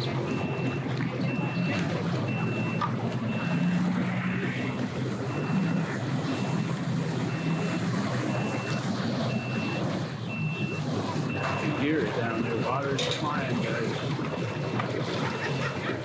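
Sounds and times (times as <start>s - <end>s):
engine running: 0.0s - 16.0s
reversing alarm beeping: 0.0s - 16.0s.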